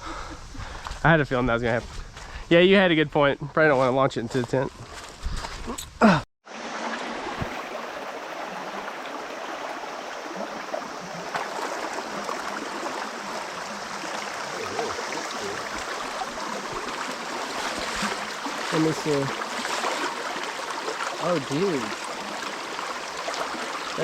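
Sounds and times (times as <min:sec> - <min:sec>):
flowing water rushing: 0:06.5 - 0:24.0.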